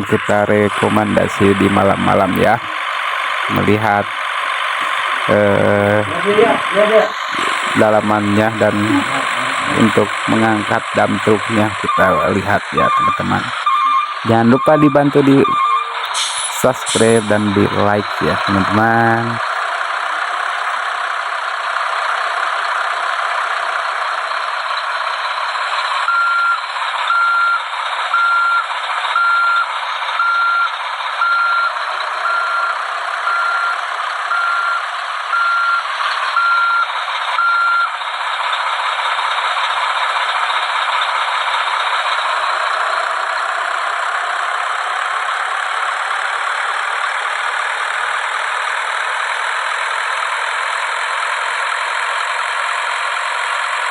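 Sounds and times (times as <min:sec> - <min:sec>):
truck reversing alarm beeps: 0:00.0 - 0:21.0, 0:24.2 - 0:38.7
truck engine noise: 0:00.0 - 0:53.9.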